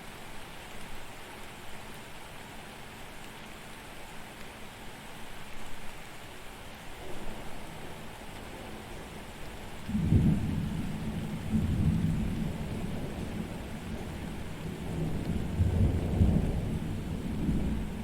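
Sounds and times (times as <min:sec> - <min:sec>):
steady rain: 0:00.0 - 0:18.0
thunder rumbling: 0:09.9 - 0:18.0.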